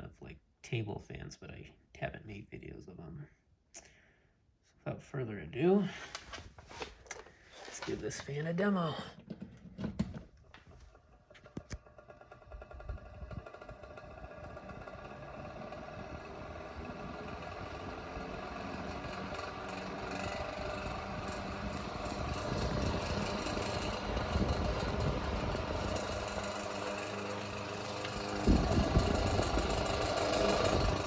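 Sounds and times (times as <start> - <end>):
fan rattling: 7.5 - 31.0
table fan motor hum: 11.5 - 31.0.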